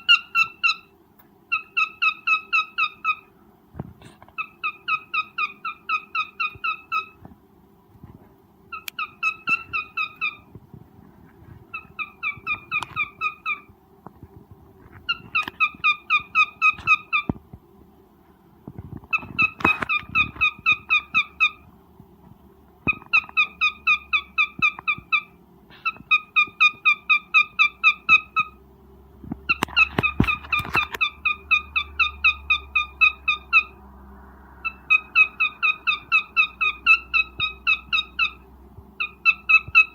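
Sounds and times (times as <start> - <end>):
cockatiel chirping: 0.0 - 0.9, 1.5 - 3.3, 4.4 - 7.2, 8.7 - 10.5, 11.7 - 13.7, 15.0 - 17.4, 19.1 - 21.6, 22.9 - 28.6, 29.5 - 33.8, 34.6 - 38.4, 39.0 - 39.9.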